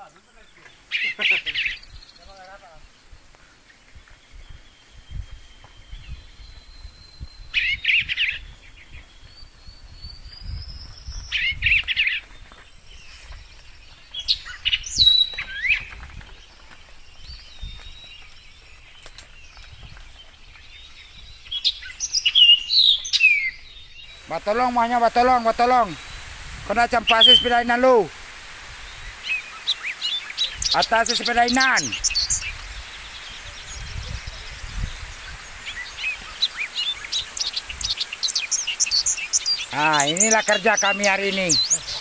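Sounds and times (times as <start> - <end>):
birds calling: 0.0 - 42.0.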